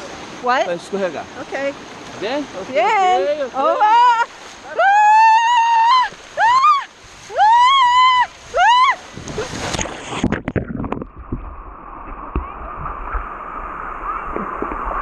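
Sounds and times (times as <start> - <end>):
rushing water: 0.0 - 15.0
woman screaming: 3.7 - 9.0
splash into water: 4.2 - 15.0.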